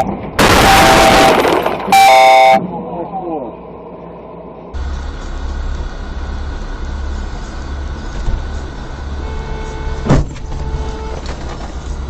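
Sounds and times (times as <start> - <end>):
sudden loud bang: 0.0 - 2.2
car driving on road: 3.6 - 12.0.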